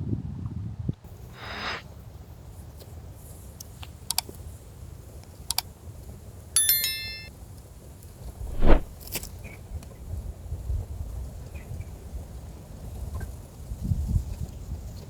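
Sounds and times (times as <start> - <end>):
metallic clink: 6.6 - 7.3.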